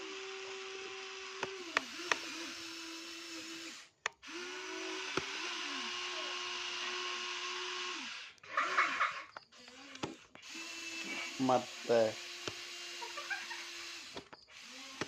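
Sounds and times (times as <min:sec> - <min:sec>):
toy electric motor whining: 0:00.0 - 0:15.0
sharp clicks: 0:01.4 - 0:02.3, 0:04.0 - 0:04.4, 0:05.0 - 0:05.4, 0:09.3 - 0:10.4, 0:12.3 - 0:12.7, 0:13.8 - 0:15.0.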